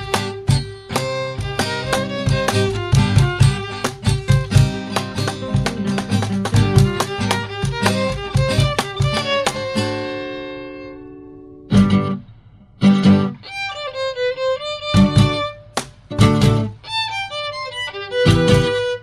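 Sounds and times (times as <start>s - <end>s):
accented band hits: 0.0s - 9.8s
pop song with violin and guitar: 0.0s - 12.2s, 12.8s - 19.0s.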